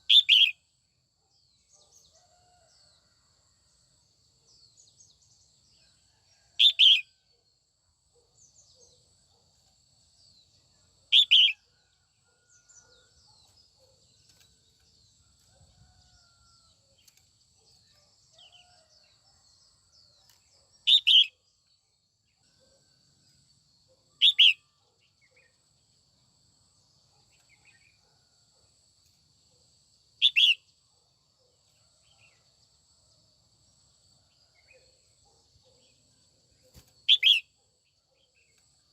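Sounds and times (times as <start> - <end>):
faint bird chirps: 34.5 - 38.9.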